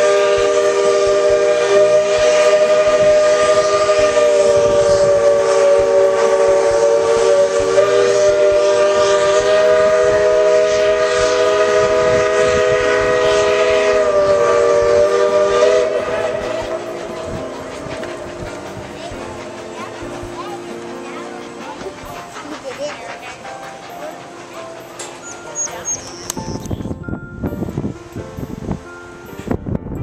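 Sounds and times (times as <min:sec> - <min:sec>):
steam hissing: 0:00.0 - 0:26.8
steam locomotive chime whistle: 0:00.0 - 0:30.0.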